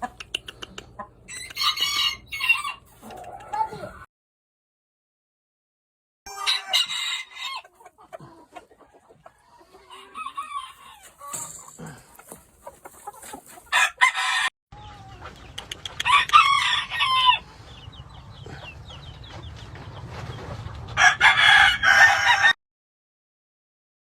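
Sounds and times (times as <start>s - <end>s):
chickens clucking: 0.0s - 4.1s, 6.3s - 14.2s, 14.8s - 21.0s
roosters crowing: 1.3s - 4.0s, 6.3s - 7.8s, 9.2s - 12.4s, 13.0s - 15.2s, 16.0s - 17.6s, 21.0s - 22.6s.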